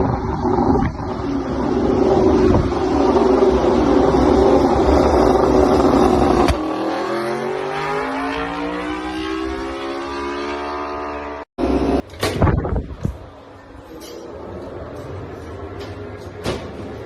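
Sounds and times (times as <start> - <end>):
motorcycle engine accelerating: 0.0 - 12.0
race bike engines roaring: 0.0 - 12.1.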